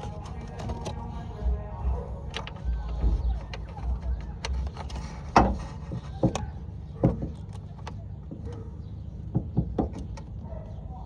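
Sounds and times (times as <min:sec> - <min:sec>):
low steady hum: 0:00.0 - 0:11.0
sharp knocks and clicks: 0:02.3 - 0:10.4.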